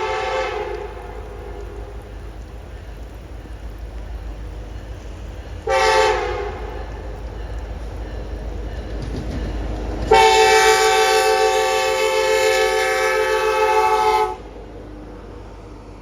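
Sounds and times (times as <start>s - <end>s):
locomotive air horn blast: 0.0s - 2.0s, 5.6s - 7.0s, 10.1s - 14.6s
low train rumble: 0.0s - 16.0s.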